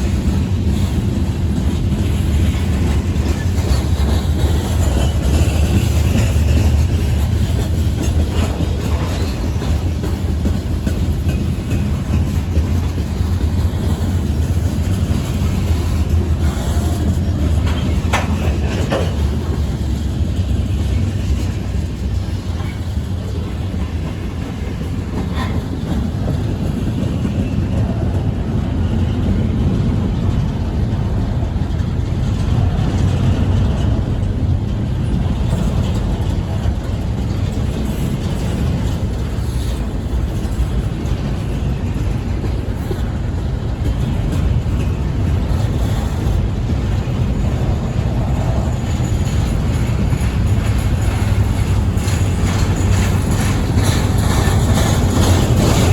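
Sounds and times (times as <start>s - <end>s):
freight train rumbling past: 0.0s - 55.9s.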